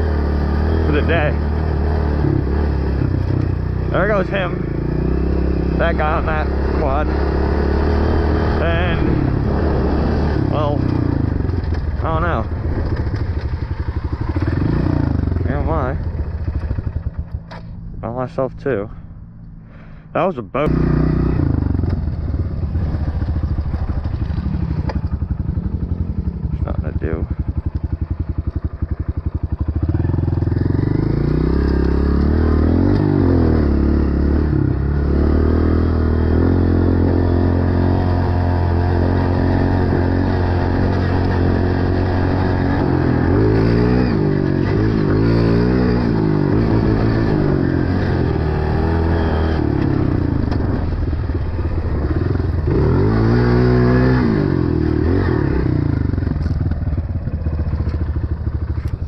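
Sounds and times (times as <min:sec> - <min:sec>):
dirt bike engine revving: 0:00.0 - 0:17.5, 0:20.6 - 0:58.9.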